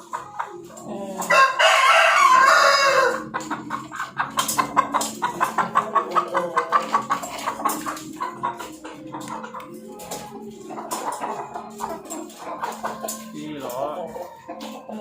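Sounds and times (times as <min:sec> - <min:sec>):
rapid clucking: 0:00.0 - 0:15.0
rooster crowing: 0:01.3 - 0:03.3.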